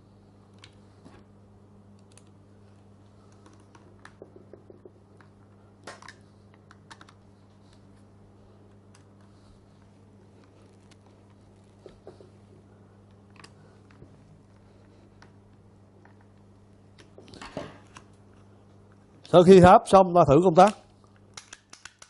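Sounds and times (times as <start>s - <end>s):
steady low hum: 0.0s - 22.0s
clicks of small parts handled: 20.6s - 22.0s.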